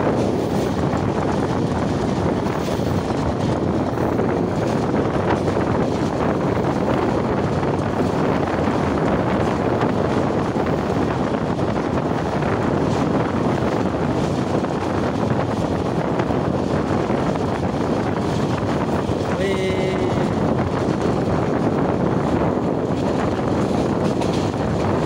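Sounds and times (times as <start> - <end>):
moving train running noise: 0.0 - 25.0
wind buffeting microphone: 0.0 - 25.0.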